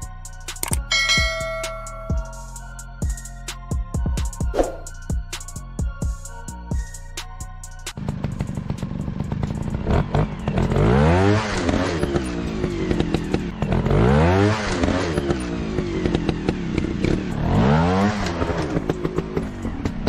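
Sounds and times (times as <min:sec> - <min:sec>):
rattling clicks: 0:00.5 - 0:01.0
motocross bike engine revving: 0:08.0 - 0:20.0.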